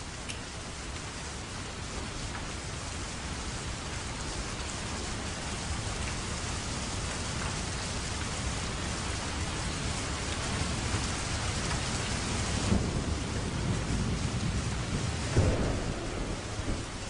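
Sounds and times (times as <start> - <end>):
rain hissing: 0.0 - 17.0
thunder rumble: 11.7 - 17.0.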